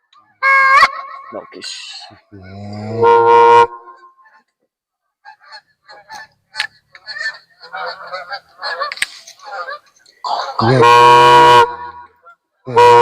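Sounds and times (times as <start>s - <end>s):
goose honking and clucking: 0.2s - 4.6s, 5.2s - 13.0s.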